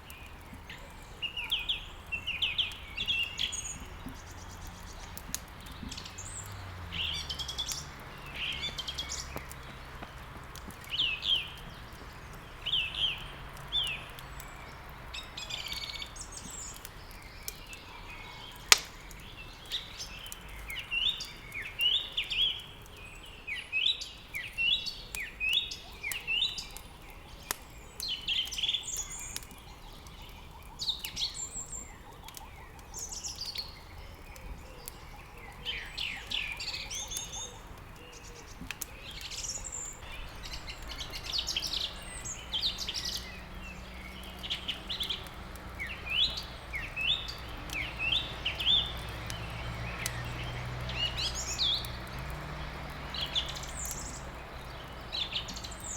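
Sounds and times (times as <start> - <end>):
songbirds chirping and singing: 0.0 - 55.9
wood crackling in fireplace: 0.0 - 55.9
sharp pop of burning wood: 2.5 - 15.1, 18.4 - 21.2.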